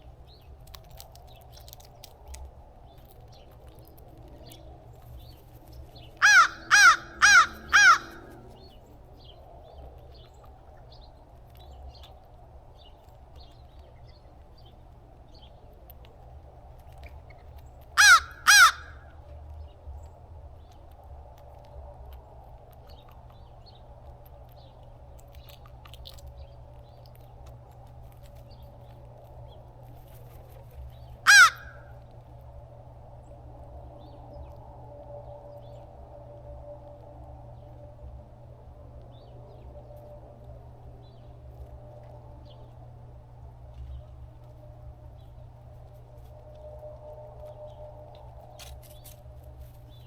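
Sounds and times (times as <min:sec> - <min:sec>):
low background hum: 0:00.0 - 0:50.0
crow cawing: 0:06.2 - 0:08.5, 0:18.0 - 0:19.1, 0:31.2 - 0:32.0.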